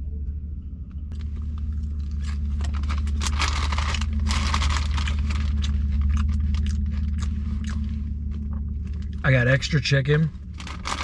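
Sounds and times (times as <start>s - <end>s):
steady low hum: 0.0s - 11.0s
chip bag crinkling: 1.2s - 9.2s, 10.5s - 11.0s.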